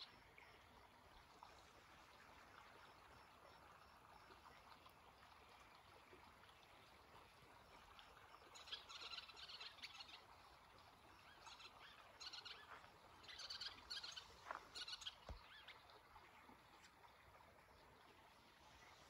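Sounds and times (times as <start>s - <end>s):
birds chirping: 11.2s - 15.8s.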